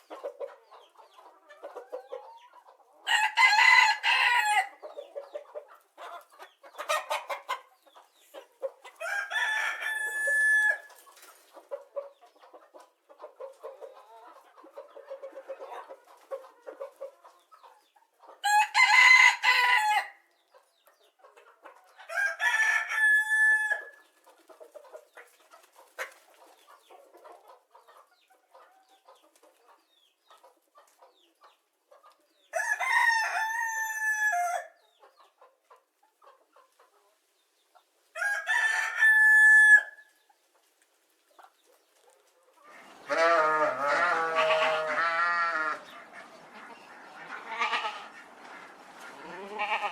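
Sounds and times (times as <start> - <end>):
rooster crowing: 3.1 - 4.7, 9.0 - 10.9, 18.4 - 20.2, 22.1 - 23.9, 32.6 - 34.7, 38.2 - 40.0.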